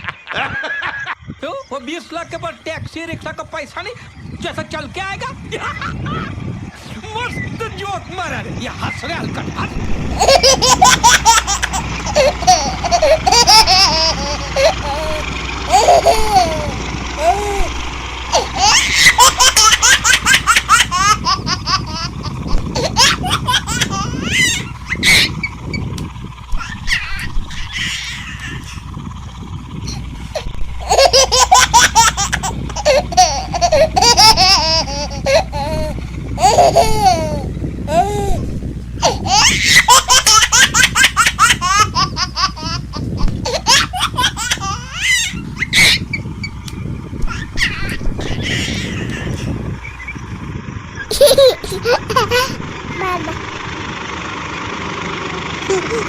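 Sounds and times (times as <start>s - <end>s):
people laughing: 0.0s - 1.2s, 5.4s - 6.4s, 9.4s - 25.3s, 30.4s - 38.1s, 51.1s - 52.6s.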